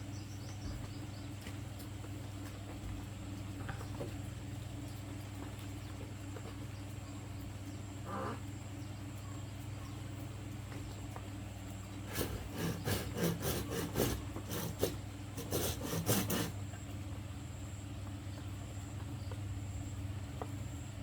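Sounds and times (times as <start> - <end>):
hand saw cutting bamboo: 12.0 - 16.6.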